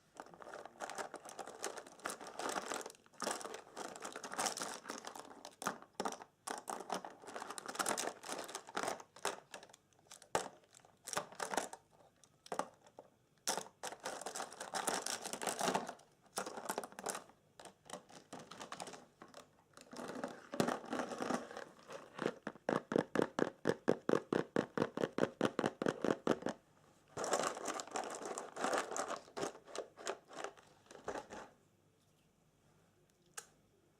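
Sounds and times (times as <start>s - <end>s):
crinkly material crumpled: 0.0s - 5.8s, 6.6s - 11.8s, 13.8s - 22.6s, 26.0s - 31.5s.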